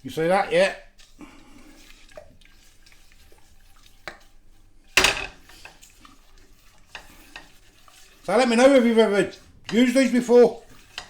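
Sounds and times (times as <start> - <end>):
spoon stirring paste in saucepan: 0.0 - 11.0
spoon knocking pan: 5.0 - 5.8.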